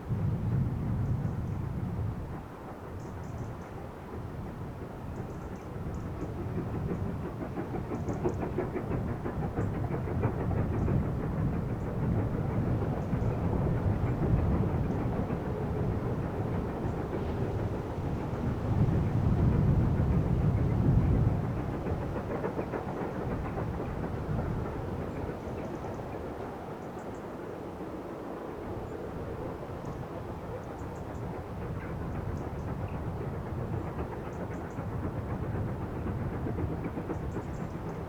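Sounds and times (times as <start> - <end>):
steam train passing: 0.0 - 38.0.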